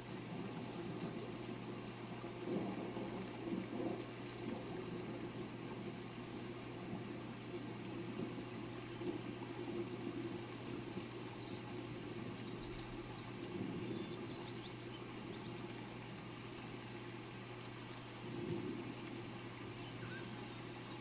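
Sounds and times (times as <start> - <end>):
steady rain falling: 0.0 - 21.0
faint short bird chirps: 19.8 - 20.6.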